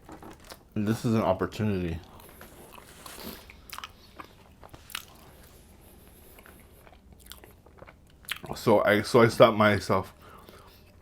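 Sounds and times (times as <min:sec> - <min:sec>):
person chewing toasted sandwich: 0:00.0 - 0:00.8, 0:02.0 - 0:08.6.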